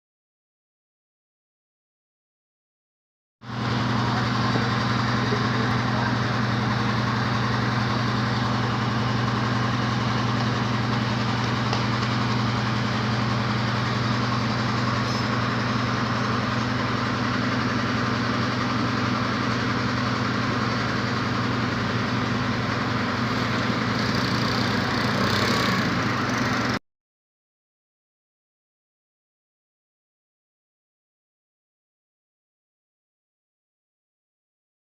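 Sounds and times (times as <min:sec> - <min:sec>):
motor humming: 0:03.5 - 0:26.8.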